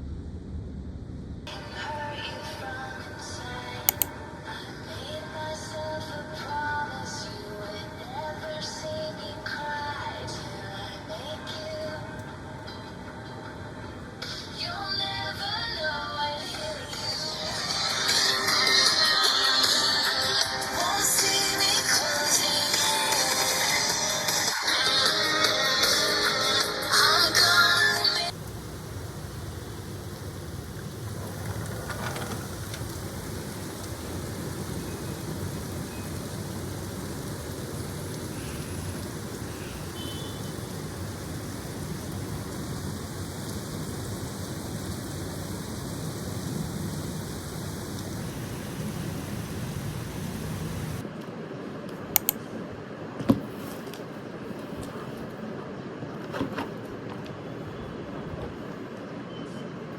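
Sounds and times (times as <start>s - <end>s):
sharp clicks: 3.9s - 4.1s
steady rushing noise: 28.3s - 51.5s.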